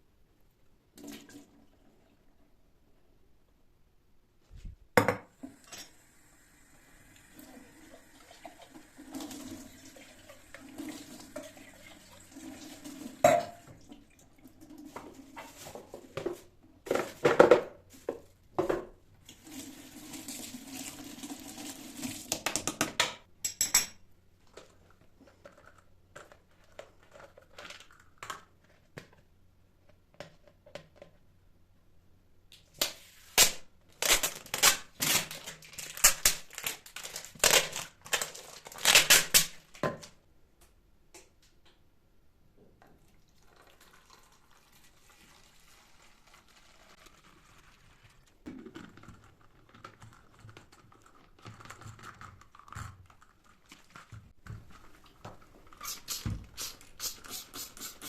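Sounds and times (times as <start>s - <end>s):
water running: 5.4s - 15.6s, 19.3s - 22.4s, 43.0s - 48.3s, 54.8s - 58.0s
dishes and utensils clattering: 13.2s - 13.7s.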